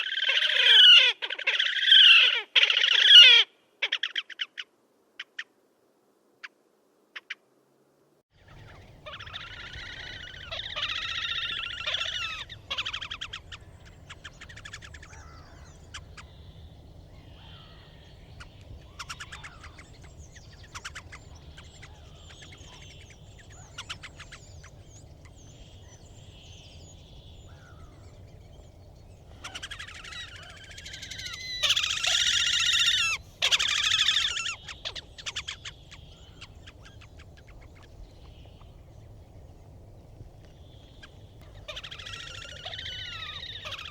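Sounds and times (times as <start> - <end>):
grebes trilling: 8.4 - 28.7, 29.3 - 38.8, 41.0 - 43.9.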